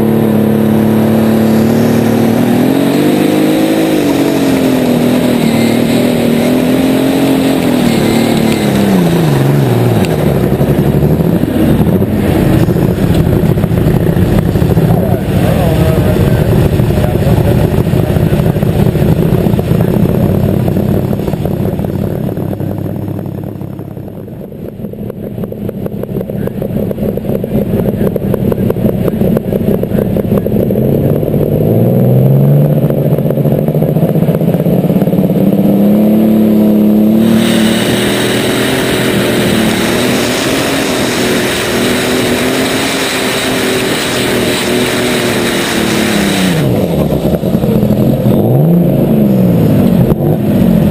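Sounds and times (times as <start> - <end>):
tractor engine revving: 0.0 - 50.9
loud hiss: 37.2 - 46.7.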